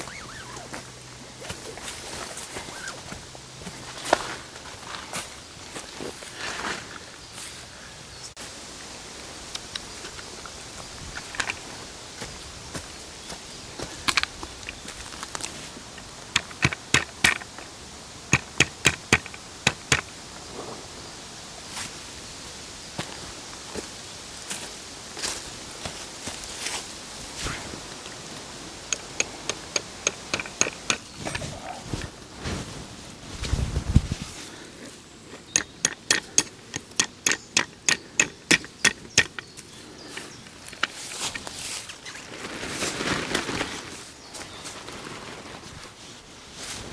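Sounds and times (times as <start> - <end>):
hard objects clicking: 13.9 - 20.2, 28.8 - 32.1, 35.3 - 41.5.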